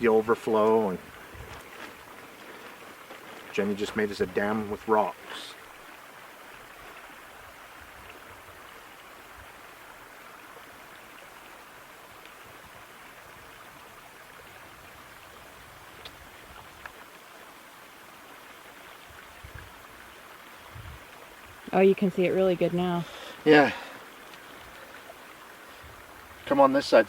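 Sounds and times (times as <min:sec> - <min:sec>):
stream water rushing: 0:00.0 - 0:27.0
faint clicks: 0:24.2 - 0:25.0.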